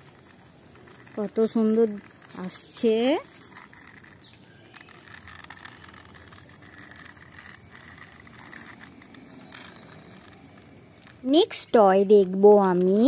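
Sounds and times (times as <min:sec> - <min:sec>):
toy car spring motor whirring: 0:00.0 - 0:13.0.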